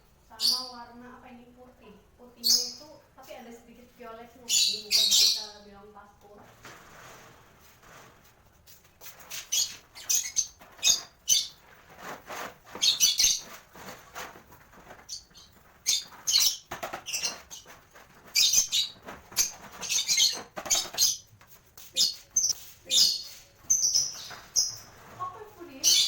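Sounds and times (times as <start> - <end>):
lovebirds chirping: 1.8 - 6.4, 9.2 - 11.8, 12.7 - 13.6, 14.7 - 26.0.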